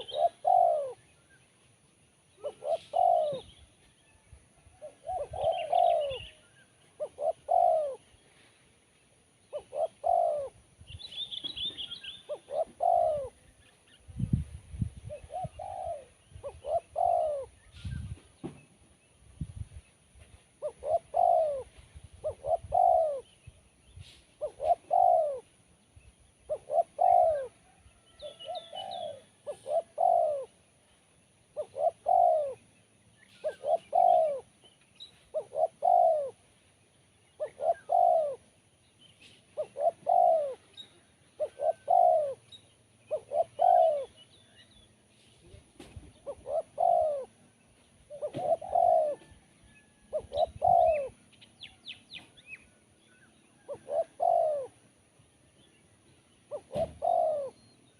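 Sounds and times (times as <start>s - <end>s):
dove cooing: 0.0s - 1.1s, 2.3s - 3.8s, 4.8s - 8.4s, 9.5s - 10.8s, 11.4s - 13.6s, 15.0s - 18.3s, 20.6s - 23.5s, 24.4s - 25.6s, 26.4s - 30.8s, 31.5s - 32.7s, 33.3s - 34.6s, 35.3s - 36.5s, 37.3s - 38.6s, 39.2s - 44.6s, 45.4s - 52.0s, 53.5s - 55.0s, 56.5s - 57.8s
birds chirping: 0.0s - 3.9s, 4.7s - 8.4s, 9.0s - 14.4s, 15.0s - 19.6s, 20.6s - 57.9s.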